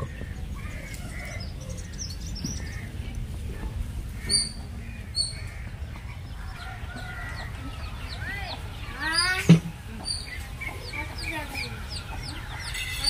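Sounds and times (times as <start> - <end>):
small birds chirping: 0.0 - 13.0
steady low rumble: 0.0 - 13.0
sharp bird calls: 4.1 - 13.0.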